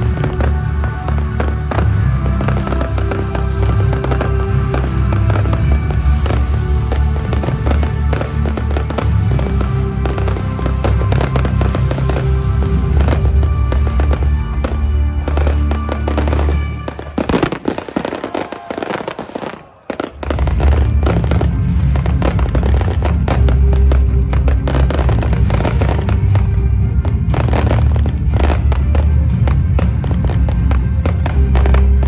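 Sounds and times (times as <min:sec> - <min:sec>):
fireworks banging and crackling: 0:00.0 - 0:32.0
loud music with heavy bass: 0:00.0 - 0:32.0.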